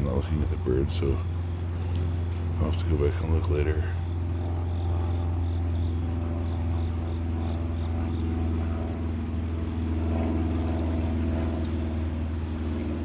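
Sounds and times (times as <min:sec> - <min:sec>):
engine idling: 0:00.0 - 0:13.0
insect chirping: 0:01.2 - 0:09.1.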